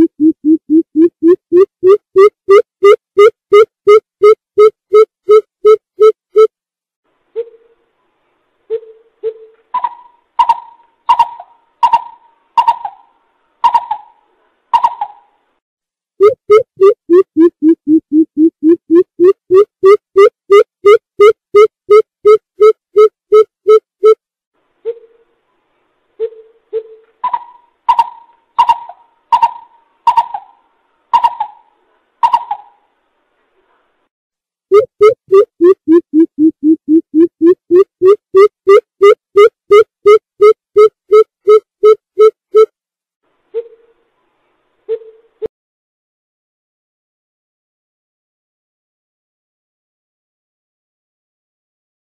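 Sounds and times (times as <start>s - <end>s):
bird hooting call: 26.8s - 30.6s.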